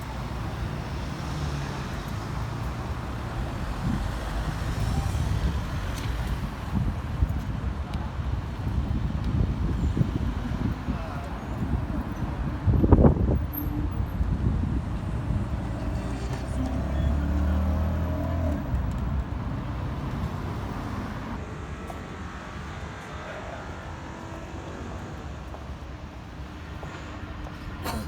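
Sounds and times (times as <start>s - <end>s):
vehicle engine running close: 0.0s - 21.4s
street traffic hum: 0.0s - 28.0s.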